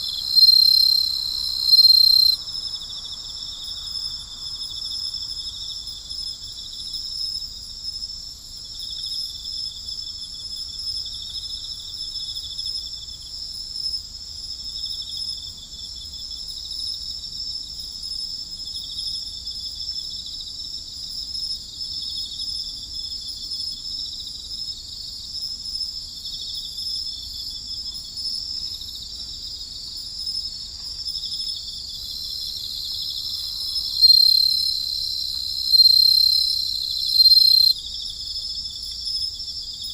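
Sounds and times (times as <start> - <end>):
insects trilling: 0.0 - 5.7, 28.6 - 39.9.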